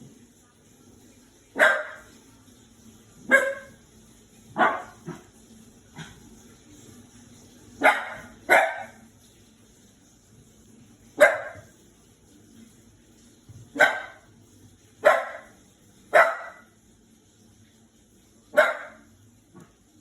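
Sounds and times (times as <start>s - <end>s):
puppy barking: 1.6s - 2.1s, 3.3s - 3.8s, 4.6s - 5.3s, 7.8s - 9.0s, 11.2s - 11.7s, 13.8s - 14.2s, 15.0s - 15.5s, 16.1s - 16.7s, 18.5s - 19.1s.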